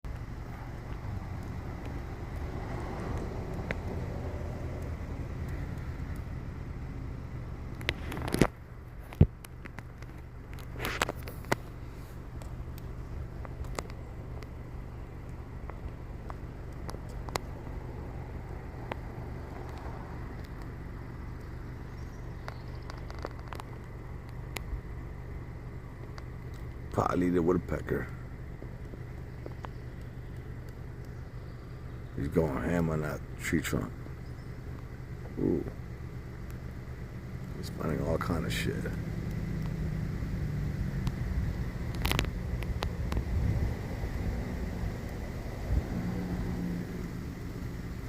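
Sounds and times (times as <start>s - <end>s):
low outdoor rumble: 0.0s - 48.0s
steady low hum: 0.0s - 48.0s.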